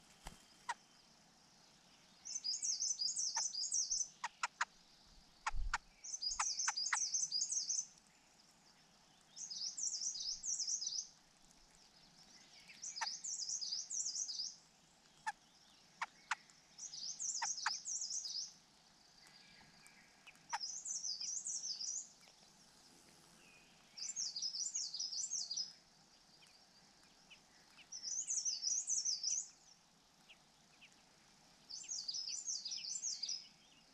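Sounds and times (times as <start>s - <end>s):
small bird warbling trills: 2.3s - 4.7s, 5.4s - 7.8s, 15.2s - 18.5s, 19.3s - 22.2s.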